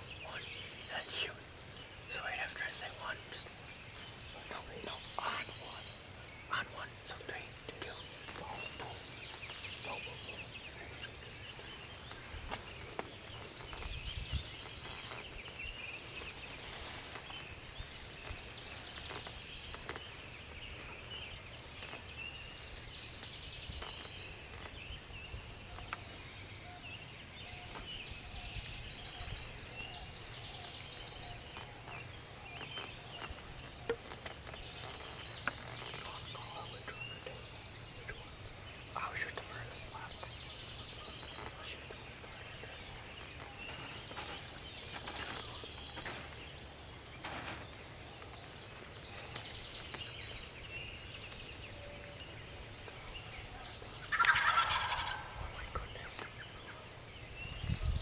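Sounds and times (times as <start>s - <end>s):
low outdoor background: 0.0s - 58.0s
songbirds singing: 0.0s - 58.0s
rustling noise: 10.9s - 22.2s, 30.2s - 37.3s, 39.5s - 50.5s.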